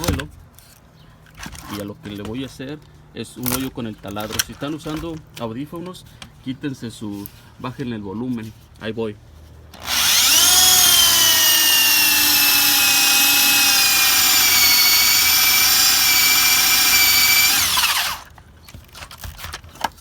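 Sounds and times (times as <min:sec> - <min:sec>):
power drill boring into wood: 0:09.8 - 0:18.3.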